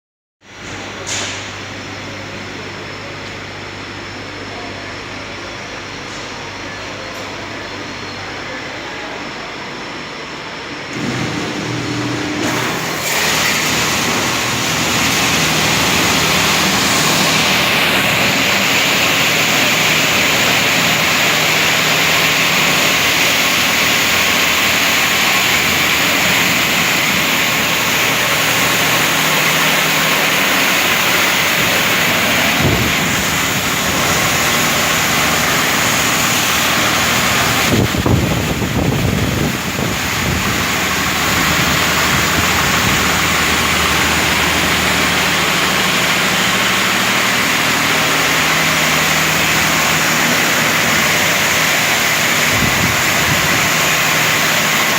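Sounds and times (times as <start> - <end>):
vehicle wash machine rushing: 0.5 - 54.9
low motor hum: 10.9 - 54.9.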